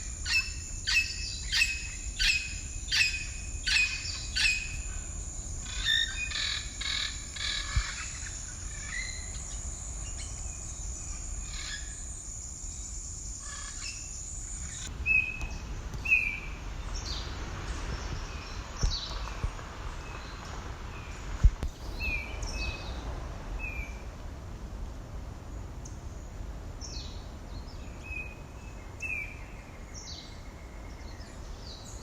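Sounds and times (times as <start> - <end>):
insects buzzing: 0.0 - 24.0
wild birds chirping: 0.0 - 24.0
wind rumble on microphone: 0.0 - 32.0.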